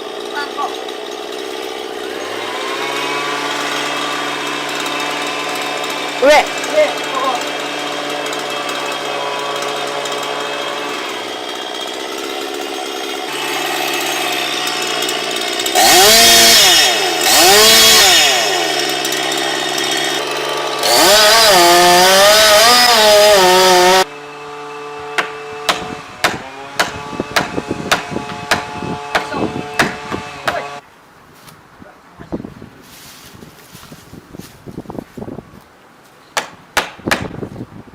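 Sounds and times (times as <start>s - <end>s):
chainsaw revving: 0.0s - 30.8s
sharp knocks and cracks: 25.2s - 30.6s, 36.4s - 37.4s.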